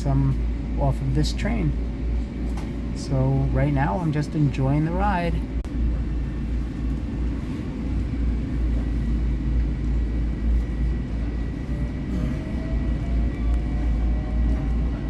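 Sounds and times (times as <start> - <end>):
train rumble inside passenger car: 0.0 - 15.0.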